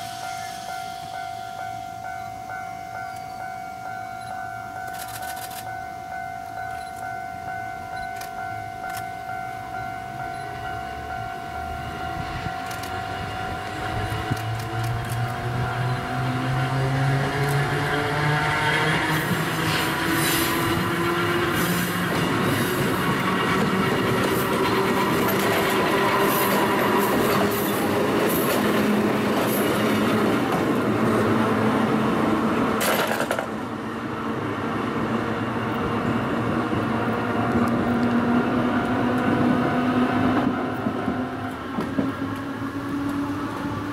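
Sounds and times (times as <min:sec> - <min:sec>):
train wheels clattering on rails: 0:13.7 - 0:31.4, 0:32.8 - 0:33.6, 0:40.4 - 0:43.2.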